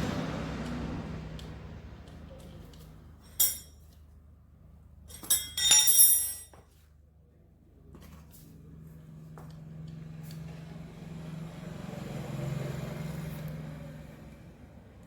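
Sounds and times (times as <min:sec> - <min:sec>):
hard objects clinking: 0:03.3 - 0:03.7, 0:05.1 - 0:06.5.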